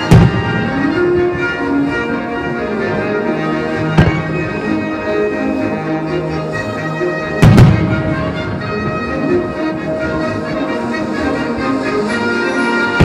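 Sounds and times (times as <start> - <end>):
fireworks bursting: 0.0 - 1.6, 3.8 - 4.7, 7.2 - 10.2
orchestral music over loudspeakers: 0.0 - 13.0.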